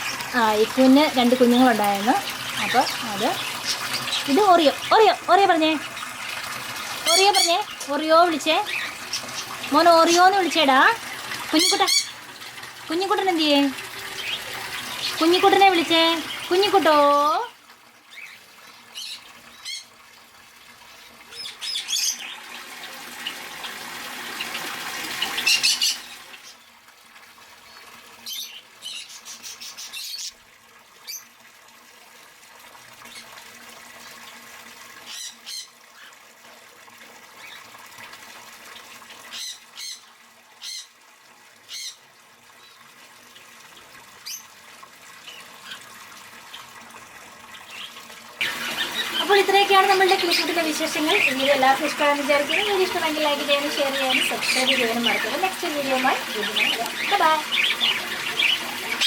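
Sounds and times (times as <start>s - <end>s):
birds squawking and chirping: 1.5s - 5.0s, 7.0s - 7.8s, 8.5s - 10.5s, 11.2s - 12.5s, 14.1s - 17.1s, 18.1s - 19.9s, 21.0s - 26.6s, 27.7s - 30.4s, 35.0s - 36.2s, 39.3s - 40.9s, 41.7s - 42.0s, 47.6s - 59.0s.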